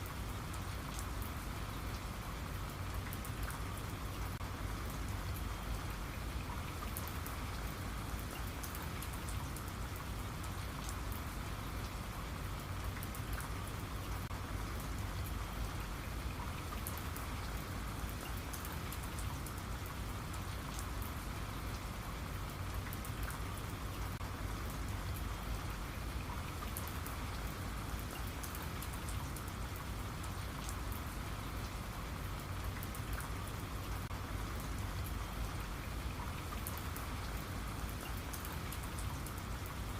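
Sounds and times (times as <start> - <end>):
raindrops ticking on a surface: 0.0 - 39.9
steady rainfall: 0.0 - 39.9.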